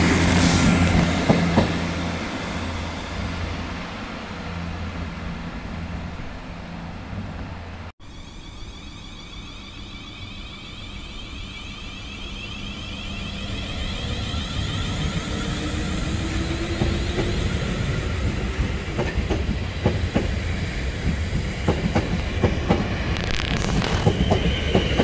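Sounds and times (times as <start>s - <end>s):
train passing: 0.0s - 25.0s.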